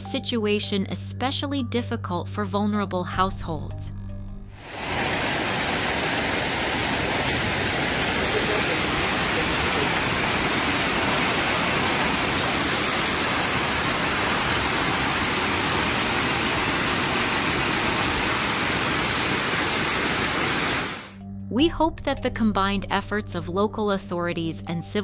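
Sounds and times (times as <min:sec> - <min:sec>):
heavy rain pouring: 0:04.6 - 0:21.2.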